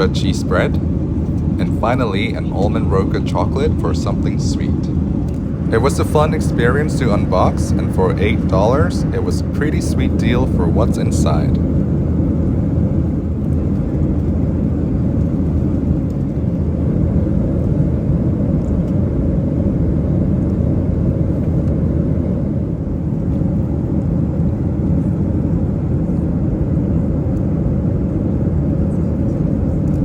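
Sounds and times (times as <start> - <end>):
airplane engine noise: 0.0 - 30.0.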